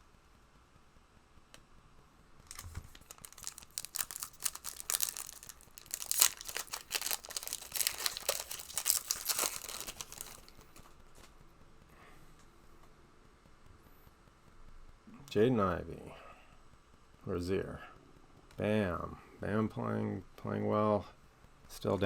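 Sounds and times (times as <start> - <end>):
wrapper tearing and crinkling: 2.5 - 10.8.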